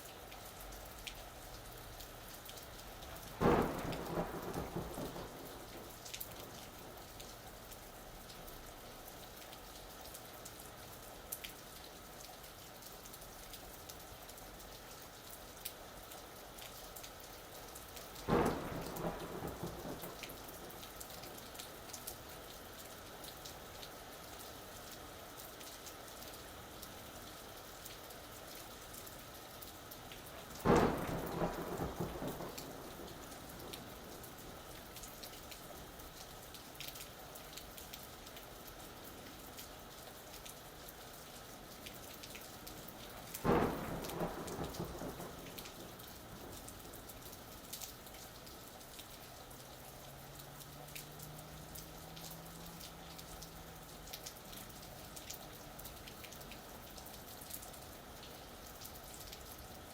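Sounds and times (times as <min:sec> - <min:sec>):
steady rain: 0:00.0 - 0:59.9
thunder rumbling: 0:03.3 - 0:07.0, 0:18.3 - 0:21.8, 0:30.6 - 0:35.3, 0:42.8 - 0:47.6.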